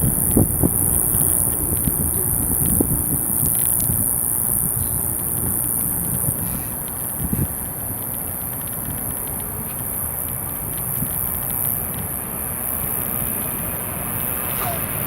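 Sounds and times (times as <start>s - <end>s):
jet engines rumbling: 11.7s - 15.0s.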